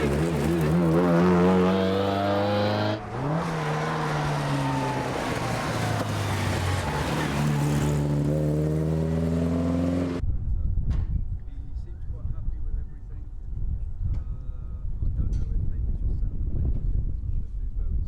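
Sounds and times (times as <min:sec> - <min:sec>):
rally car engine accelerating: 0:00.0 - 0:10.2.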